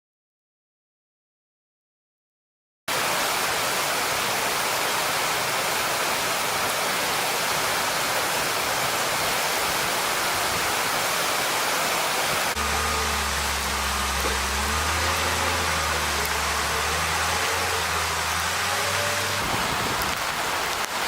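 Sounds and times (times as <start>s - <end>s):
rushing hiss: 2.9s - 12.6s, 19.4s - 21.0s.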